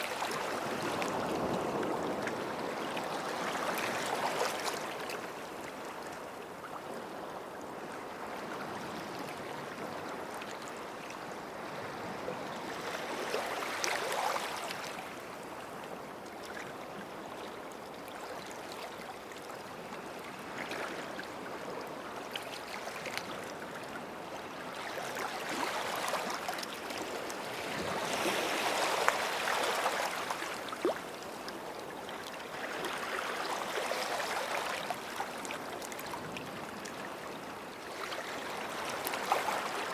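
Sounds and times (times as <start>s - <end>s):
small waves washing on shore: 18.2s - 39.9s.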